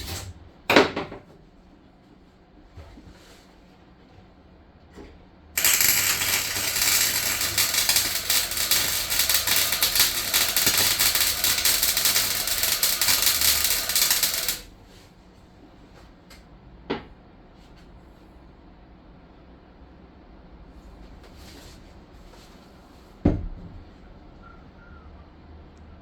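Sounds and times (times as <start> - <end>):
welding arc crackling: 5.6 - 14.7.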